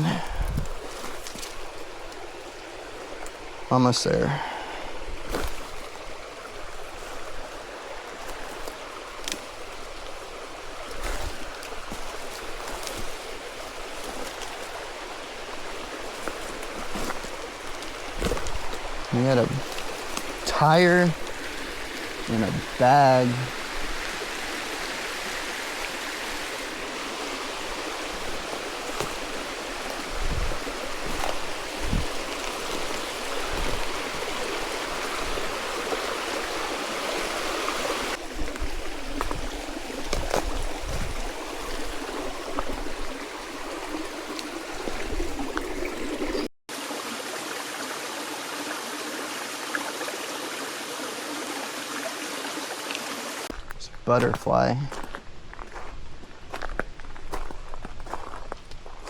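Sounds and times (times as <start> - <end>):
stream water rushing: 0.0 - 53.8
soft low thumps: 29.0 - 34.0.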